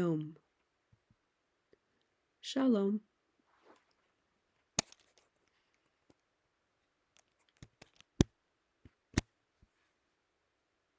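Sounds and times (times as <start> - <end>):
sharp clicks and knocks: 7.2 - 8.3.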